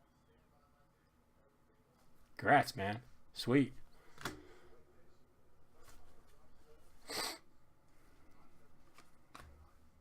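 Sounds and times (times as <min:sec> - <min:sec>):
person sniffing: 0:07.0 - 0:07.4.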